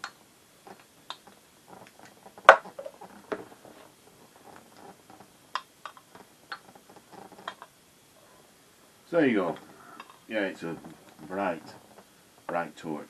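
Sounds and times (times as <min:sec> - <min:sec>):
small clicks and knocks: 0:00.0 - 0:07.8.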